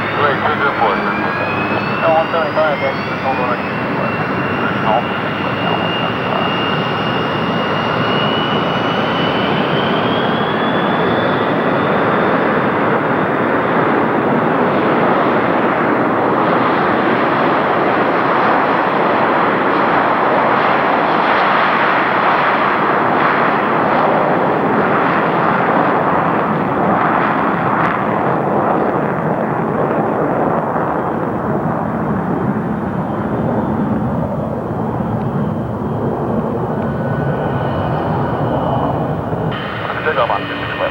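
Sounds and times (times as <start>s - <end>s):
jet engines spooling up: 0.0s - 11.9s, 32.2s - 40.9s
jet engine takeoff roar: 0.0s - 40.9s.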